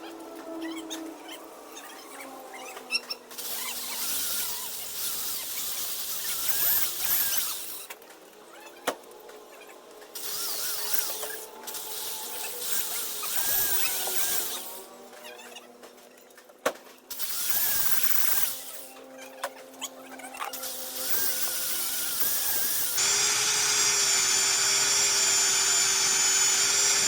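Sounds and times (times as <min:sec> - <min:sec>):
valve grinding scrape with squeaks: 0:00.5 - 0:08.0, 0:10.2 - 0:14.9, 0:17.1 - 0:19.0, 0:19.8 - 0:27.0.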